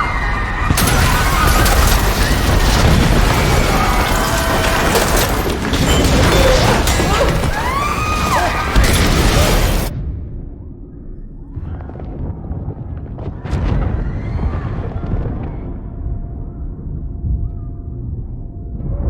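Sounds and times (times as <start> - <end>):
debris crashing and shattering: 0.0 - 9.9
deep earthquake rumble: 0.2 - 10.1, 11.4 - 19.0.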